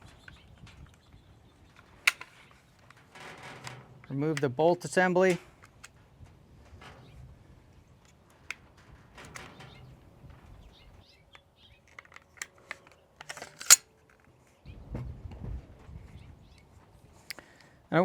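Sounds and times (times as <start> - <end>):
metallic clicks and rattles: 11.9 - 13.8
sharp loud click: 13.3 - 13.8.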